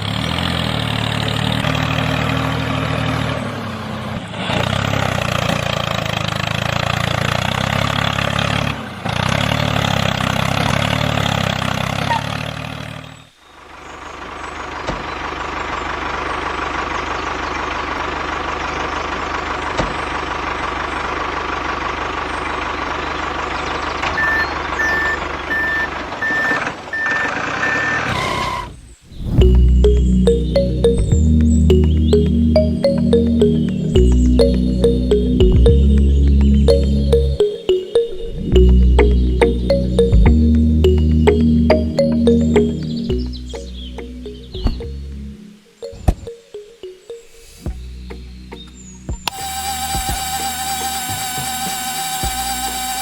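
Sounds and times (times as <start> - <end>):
heavy vehicle engine running: 0.0 - 13.0, 14.0 - 28.6, 29.4 - 37.4, 47.7 - 53.0
reversing beeper: 24.0 - 28.7.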